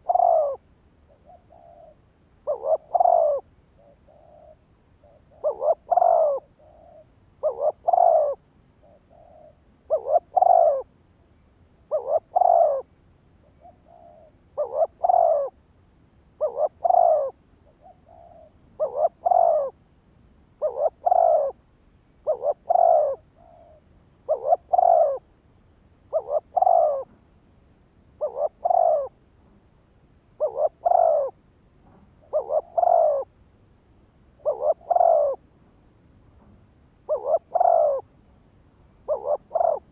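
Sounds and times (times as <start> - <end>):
dove cooing: 0.0 - 10.9, 11.9 - 15.6, 16.4 - 19.8, 20.6 - 21.6, 22.2 - 25.4, 26.1 - 27.2, 28.2 - 29.3, 30.4 - 31.4, 32.2 - 33.4, 34.4 - 35.5, 37.0 - 38.2, 39.0 - 39.9.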